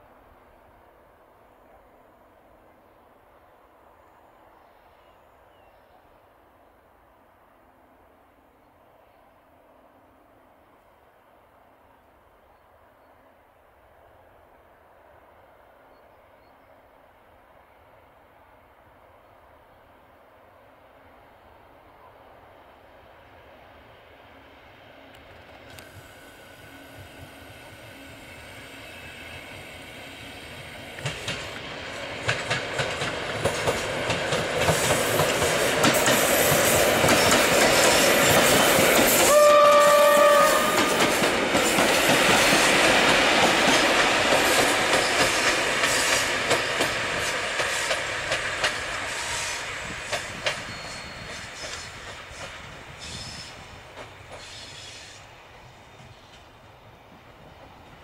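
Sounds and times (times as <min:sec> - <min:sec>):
electric train passing: 0:00.0 - 0:58.0
wheels clicking over rail joints: 0:31.0 - 0:39.9
train horn blast: 0:39.2 - 0:41.1.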